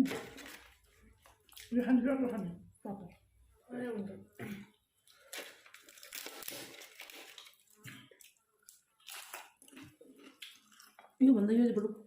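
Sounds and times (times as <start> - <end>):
chewing crunchy food: 0.1 - 1.8, 4.6 - 11.2.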